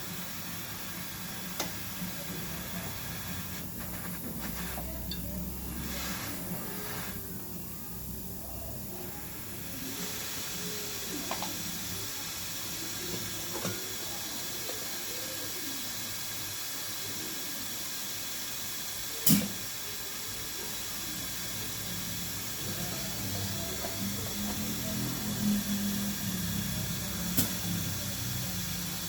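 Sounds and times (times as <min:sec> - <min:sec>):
gas hissing: 0:00.0 - 0:29.0.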